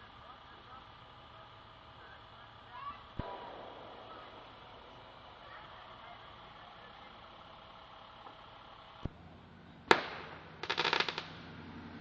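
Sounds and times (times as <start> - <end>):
firework crackling pops: 3.1 - 9.2, 9.9 - 11.5
firework bang: 3.2 - 6.7, 9.9 - 11.3.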